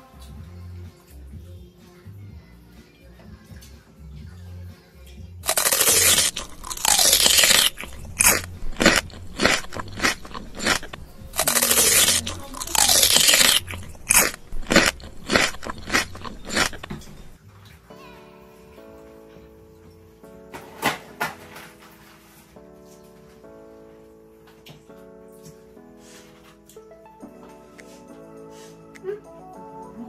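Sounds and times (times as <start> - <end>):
crunching and chewing food: 5.4 - 17.4.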